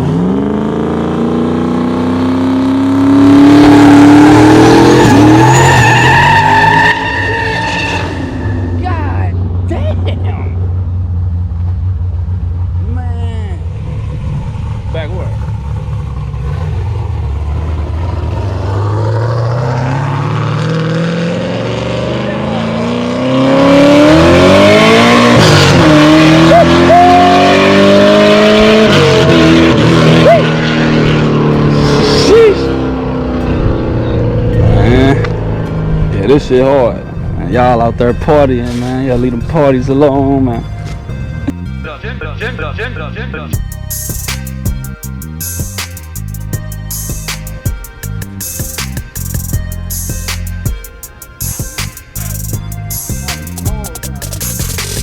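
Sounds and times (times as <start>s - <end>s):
car engine revving: 0.0s - 55.0s
tyres squealing: 4.7s - 9.1s.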